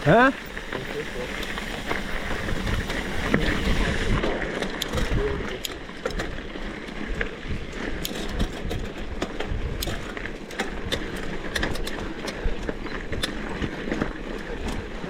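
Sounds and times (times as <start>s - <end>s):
bicycle freewheel ticking: 0.0s - 15.0s
wind and riding rumble: 0.0s - 15.0s
clicks and rattles: 4.5s - 6.4s, 8.0s - 14.9s.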